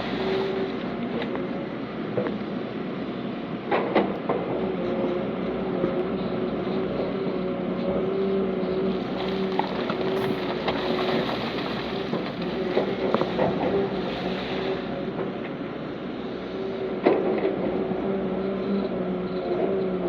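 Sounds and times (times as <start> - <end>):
heavy diesel engine running: 4.4 - 20.0.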